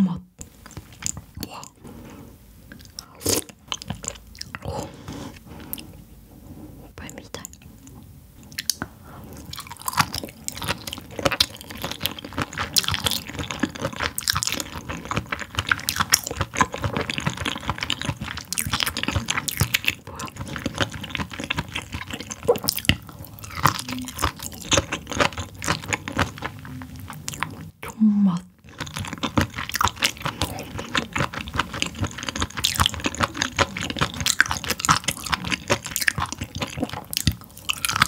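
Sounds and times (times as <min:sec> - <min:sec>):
wet squishy chewing: 0:09.4 - 0:38.0.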